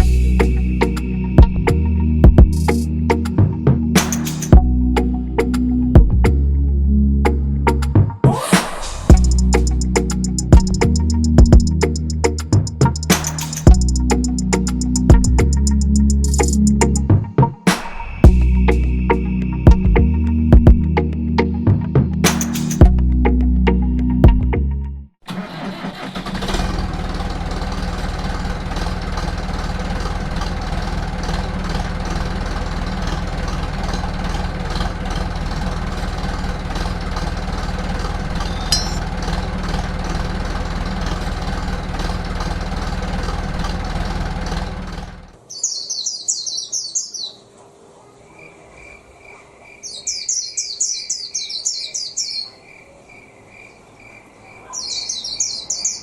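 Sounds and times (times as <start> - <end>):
birds chirping: 8.7 - 22.8, 36.2 - 39.1, 45.4 - 56.0
high bird peep: 38.4 - 39.0, 45.5 - 47.5, 48.3 - 56.0.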